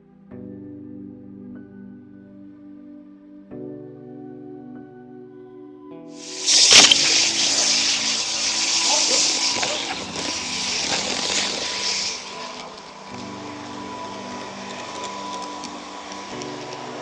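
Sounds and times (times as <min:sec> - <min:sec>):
model train rolling hiss: 0:06.2 - 0:17.0
thin steady whine: 0:06.2 - 0:17.0
sharp clicks: 0:06.3 - 0:13.3.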